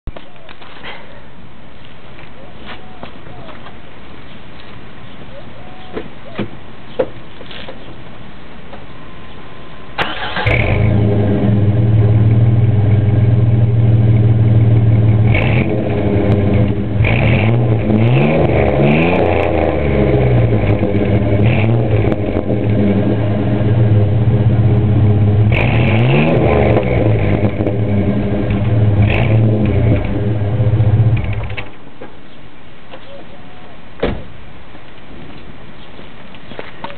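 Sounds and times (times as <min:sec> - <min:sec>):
car engine starting and revving: 0:10.0 - 0:31.6.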